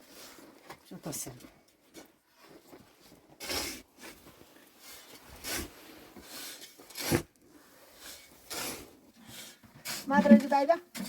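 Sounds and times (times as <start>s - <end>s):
objects rubbing and scraping: 3.4s - 11.0s.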